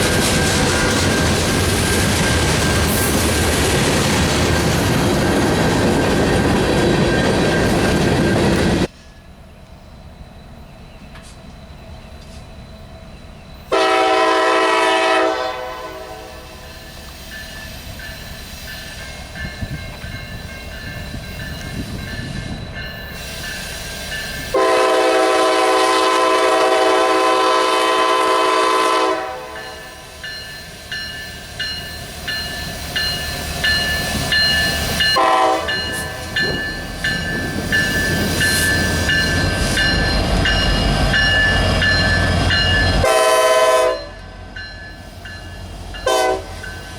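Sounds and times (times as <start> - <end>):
train rumbling: 0.0 - 46.9
train air horn blasts: 13.7 - 16.6, 24.5 - 30.1, 35.1 - 36.3, 42.9 - 44.2, 46.0 - 46.7.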